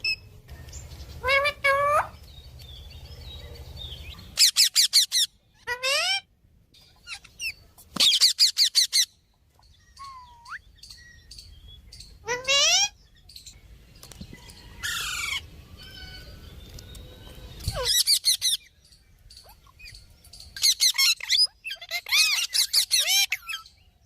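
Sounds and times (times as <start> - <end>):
parrot squawking: 1.2 - 2.2, 4.3 - 6.3, 7.0 - 9.1, 12.2 - 13.0, 20.6 - 23.6.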